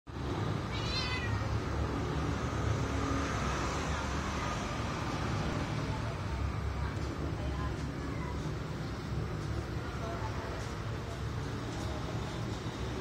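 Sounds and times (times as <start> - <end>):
cat yowling: 0.7 - 1.6.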